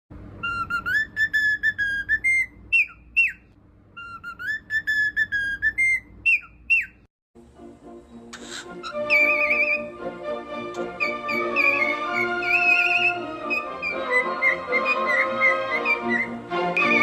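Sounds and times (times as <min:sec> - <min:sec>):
cockatiel whistling a tune: 0:00.4 - 0:07.1, 0:08.4 - 0:10.0, 0:10.8 - 0:17.0
short hiss: 0:08.3 - 0:08.8.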